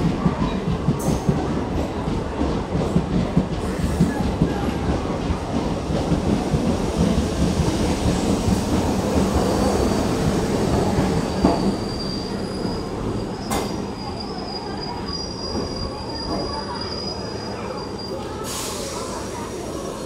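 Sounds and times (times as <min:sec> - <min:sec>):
train wheels clattering: 0:00.0 - 0:14.6
train rumble: 0:00.0 - 0:20.0
high brake squeal: 0:09.4 - 0:19.6.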